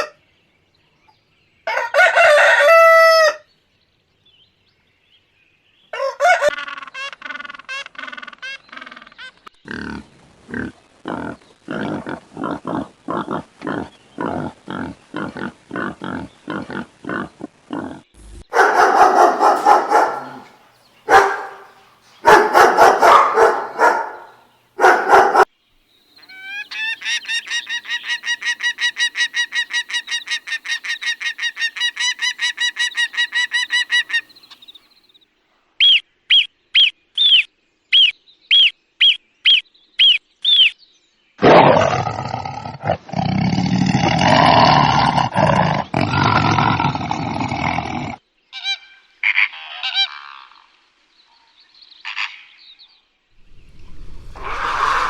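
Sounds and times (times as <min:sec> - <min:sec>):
rough drawn-out animal call: 0:06.0 - 0:25.5, 0:53.5 - 0:55.0
loud harsh animal calls: 0:06.2 - 0:25.5, 0:53.5 - 0:55.0
animal grunts: 0:09.6 - 0:24.4, 0:41.4 - 0:48.2
repeated pitched calls: 0:18.5 - 0:25.5, 0:53.5 - 0:55.0.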